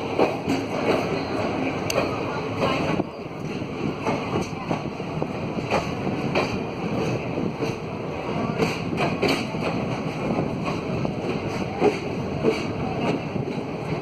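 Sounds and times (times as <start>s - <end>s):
freight train rumble: 0.0s - 14.0s
sharp clacks of wheels: 8.5s - 14.0s.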